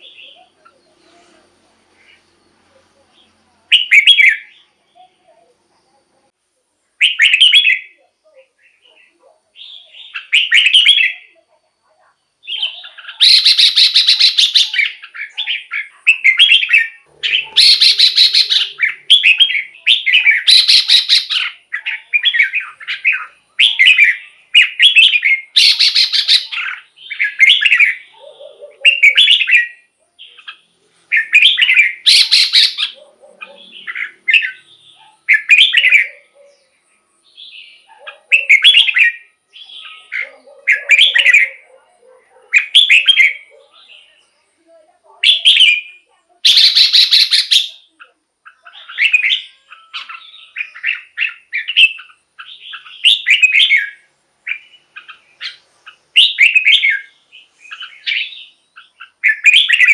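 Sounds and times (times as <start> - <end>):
bird singing whistled phrases: 3.7 - 4.6, 7.0 - 8.0, 9.6 - 11.4, 12.4 - 28.1, 31.1 - 33.0, 37.4 - 41.6, 45.2 - 57.1, 57.7 - 59.9
harsh buzzy bird calls: 12.4 - 43.6, 45.2 - 59.9.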